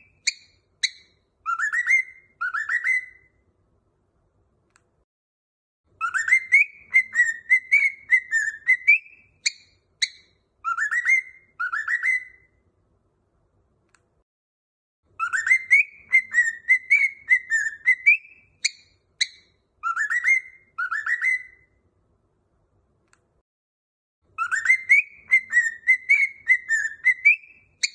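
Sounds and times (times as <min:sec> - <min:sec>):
cockatiel whistling song: 0:00.0 - 0:03.4, 0:05.9 - 0:12.6, 0:15.1 - 0:21.8, 0:24.3 - 0:27.9.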